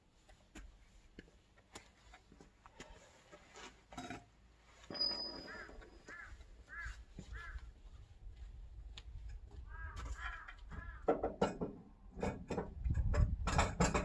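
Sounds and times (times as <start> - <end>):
bird calling: 4.9 - 7.6.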